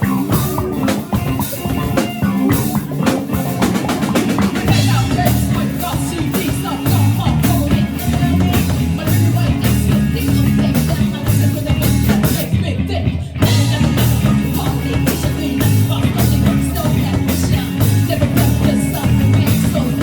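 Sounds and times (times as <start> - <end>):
drum kit beat: 0.0 - 12.6, 13.4 - 20.0
bass guitar: 0.0 - 20.0
person singing: 0.0 - 20.0.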